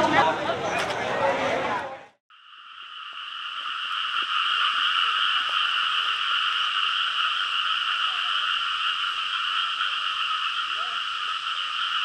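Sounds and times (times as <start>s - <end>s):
chorus of frogs calling: 2.4s - 12.0s.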